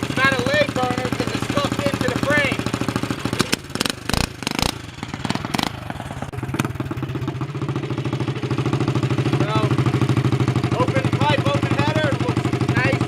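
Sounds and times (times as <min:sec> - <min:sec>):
small engine idling: 0:00.0 - 0:13.0
sharp knocks: 0:03.4 - 0:05.9.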